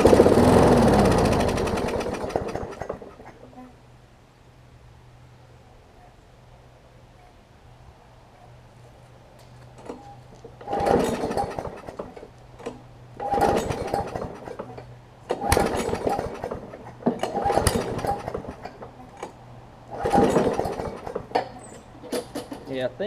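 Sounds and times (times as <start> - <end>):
mower engine pull-start rattling: 0.0 - 3.4, 9.8 - 22.9.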